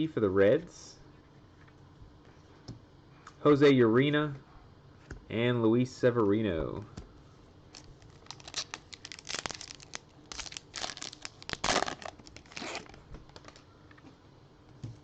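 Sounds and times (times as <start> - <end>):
wrapper tearing and crinkling: 7.7 - 13.6.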